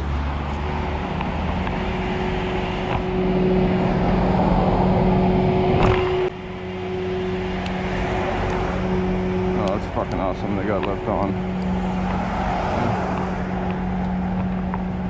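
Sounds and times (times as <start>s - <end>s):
road noise: 0.0s - 15.0s
vehicle engine humming: 0.0s - 15.0s.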